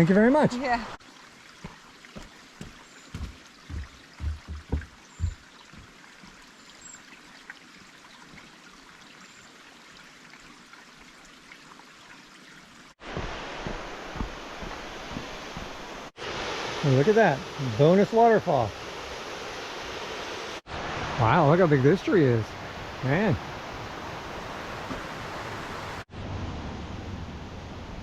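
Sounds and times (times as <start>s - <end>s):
rushing stream water: 0.0s - 26.1s
low thumps: 2.6s - 5.9s.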